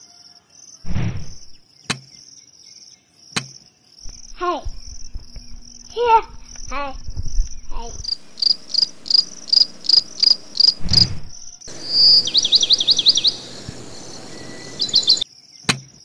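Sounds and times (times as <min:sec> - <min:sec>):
crickets chirping: 0:00.0 - 0:16.0
low thump: 0:00.9 - 0:01.6, 0:04.1 - 0:08.2, 0:10.8 - 0:11.6.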